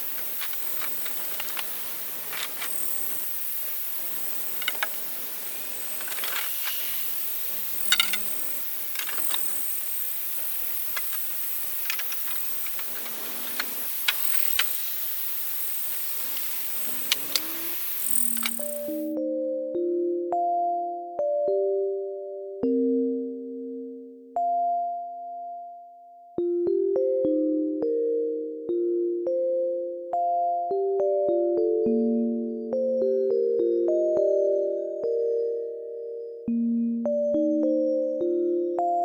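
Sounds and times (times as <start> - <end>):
sharp clicks and snaps: 0.0 - 19.1
insects buzzing: 0.0 - 19.2.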